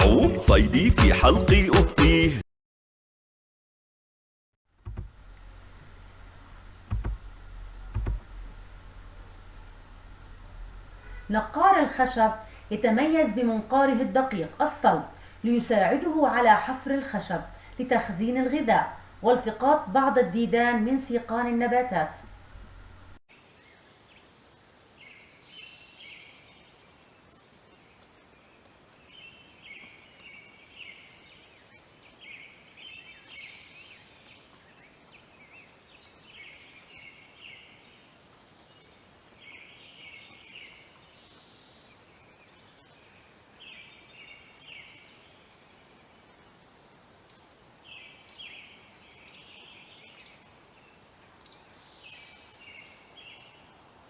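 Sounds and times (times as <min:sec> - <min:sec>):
birds chirping and trilling: 0:04.9 - 0:23.1
faint background hiss: 0:04.9 - 0:54.0.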